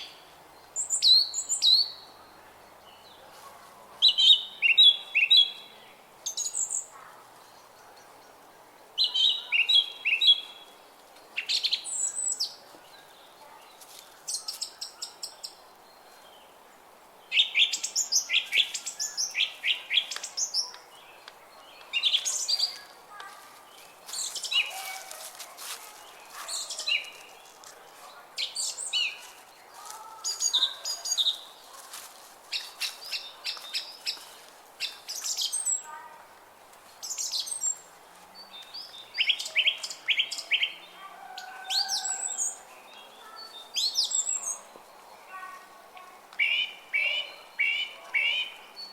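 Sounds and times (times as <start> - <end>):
songbirds chirping and singing: 0.0 - 36.0, 37.0 - 48.9
faint background noise: 0.0 - 48.9.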